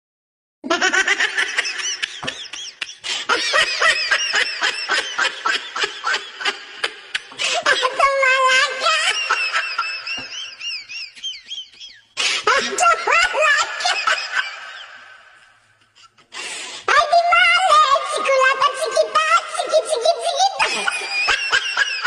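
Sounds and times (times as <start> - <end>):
child laughing and squealing: 12.5 - 14.9, 17.0 - 22.0.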